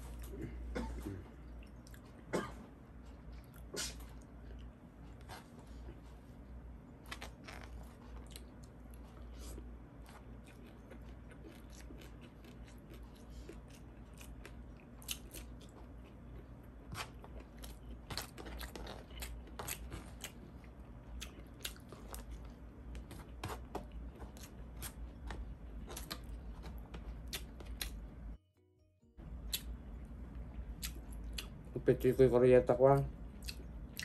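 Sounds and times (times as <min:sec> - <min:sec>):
chewing and crunching: 0:01.4 - 0:02.3, 0:03.0 - 0:06.1, 0:06.9 - 0:28.2, 0:29.4 - 0:31.7, 0:33.0 - 0:34.0
low hum: 0:20.3 - 0:31.9.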